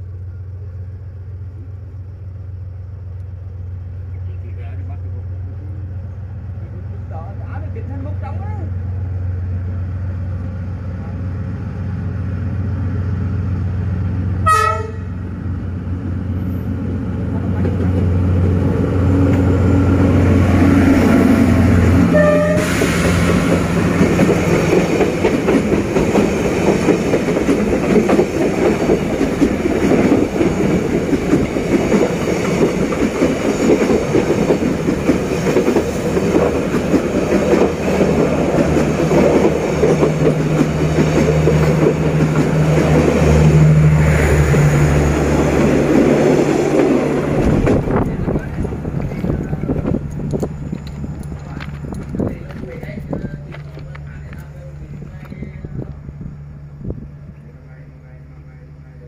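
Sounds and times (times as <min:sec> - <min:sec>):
diesel locomotive engine droning: 0:00.0 - 0:59.0
train horn blast: 0:14.4 - 0:15.2, 0:21.9 - 0:23.0
wheels clattering on rails: 0:17.3 - 0:43.5, 0:45.0 - 0:56.0.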